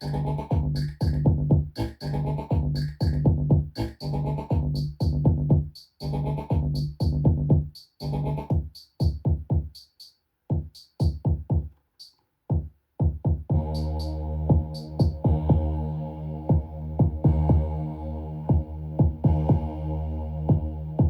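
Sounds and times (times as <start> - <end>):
pitched synth notes: 13.5 - 21.0
electronic drum hits: 14.5 - 15.7, 16.5 - 17.6, 18.5 - 19.7.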